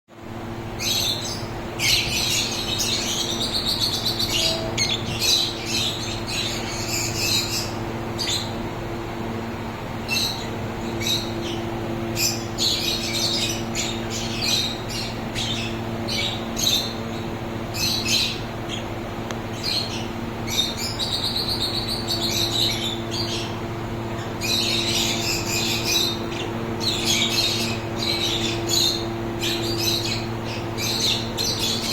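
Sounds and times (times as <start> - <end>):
pet birds chirping and chattering: 0.7 - 31.9
bird squawks: 0.9 - 8.5.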